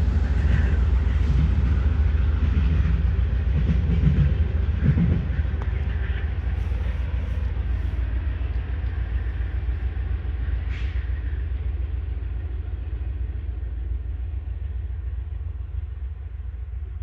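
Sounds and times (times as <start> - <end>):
freight train rumble: 0.0 - 17.0.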